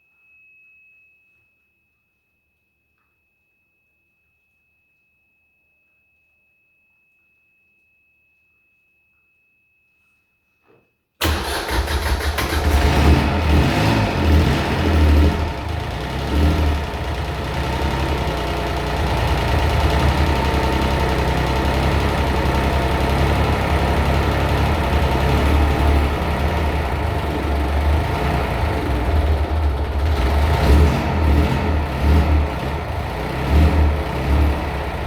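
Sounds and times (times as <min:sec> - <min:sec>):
diesel engine starting and running: 0:11.2 - 0:35.0.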